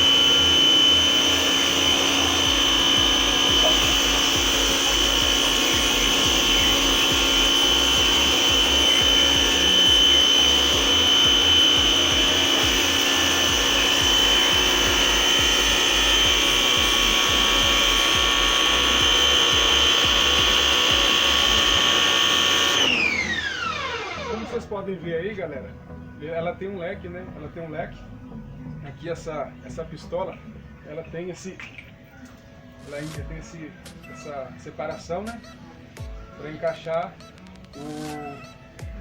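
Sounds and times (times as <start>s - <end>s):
pressure washer motor whine: 0.0s - 24.9s.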